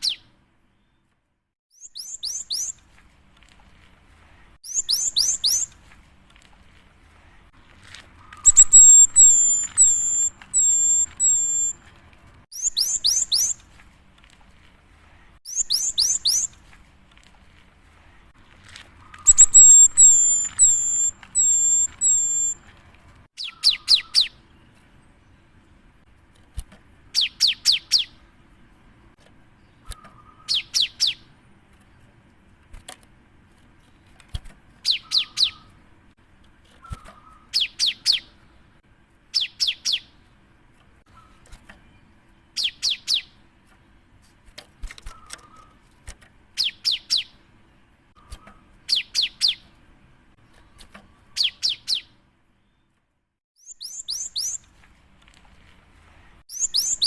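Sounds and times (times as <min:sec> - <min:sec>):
bird singing whistled notes: 0:00.0 - 0:01.1, 0:01.7 - 0:02.8, 0:04.6 - 0:05.8, 0:08.2 - 0:11.8, 0:12.5 - 0:13.6, 0:15.5 - 0:16.6, 0:19.0 - 0:22.6, 0:23.4 - 0:24.4, 0:27.2 - 0:28.2, 0:29.7 - 0:31.2, 0:34.8 - 0:35.7, 0:39.4 - 0:40.1, 0:42.6 - 0:43.4, 0:46.6 - 0:47.4, 0:48.9 - 0:49.6, 0:51.3 - 0:52.8, 0:53.6 - 0:54.6, 0:56.5 - 0:57.0.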